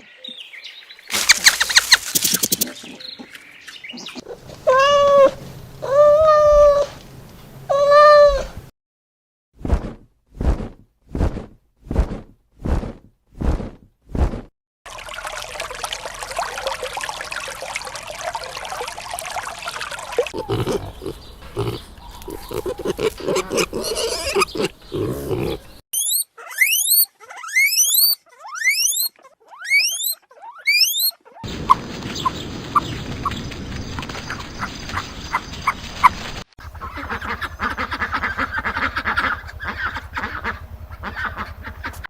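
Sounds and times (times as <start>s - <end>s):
pig grunting: 20.3s - 25.8s
pig squealing: 20.3s - 31.5s.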